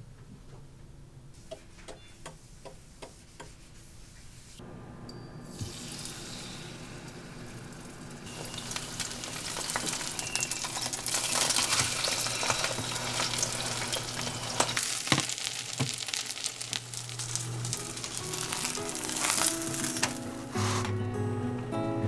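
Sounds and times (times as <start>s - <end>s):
food sizzling in a pan: 5.1s - 21.0s.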